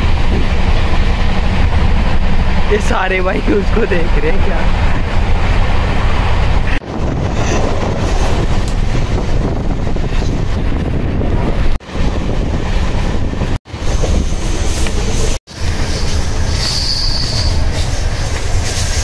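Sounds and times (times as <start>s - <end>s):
wind buffeting microphone: 0.0s - 16.6s
train wheels rumbling on track: 0.0s - 19.0s.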